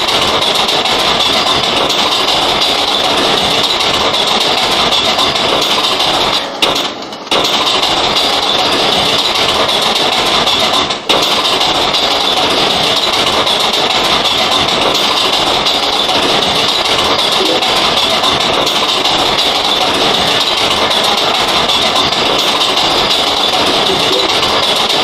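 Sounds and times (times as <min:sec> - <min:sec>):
subway train rumble and hiss: 0:04.5 - 0:25.0
high-pitched whine: 0:14.6 - 0:24.7.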